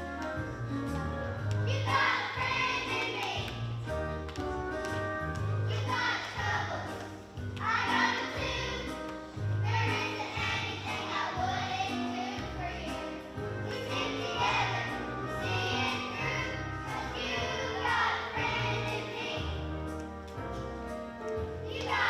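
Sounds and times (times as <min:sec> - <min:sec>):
instrumental backing: 0:00.0 - 0:22.0
group of voices singing: 0:01.7 - 0:03.5, 0:07.6 - 0:09.0, 0:09.6 - 0:19.6, 0:21.7 - 0:22.0.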